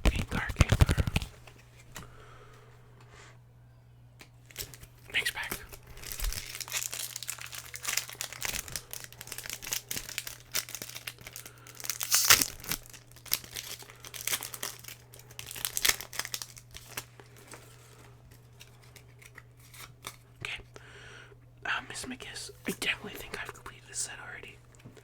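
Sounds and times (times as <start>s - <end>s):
foil wrapper crinkling and tearing: 0.1s - 1.3s, 4.4s - 20.2s.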